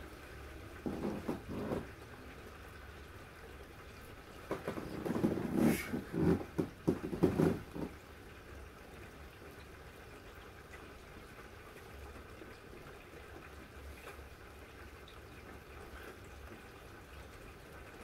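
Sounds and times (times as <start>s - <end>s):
rain on window: 0.0s - 18.0s
muffled knocks and rustles: 0.8s - 2.0s, 4.4s - 8.0s.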